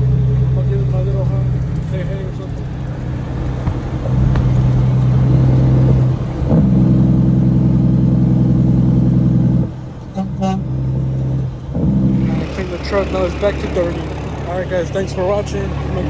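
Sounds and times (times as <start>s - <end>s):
diesel engine running: 0.0s - 16.0s
truck air horn blasts: 9.5s - 15.0s.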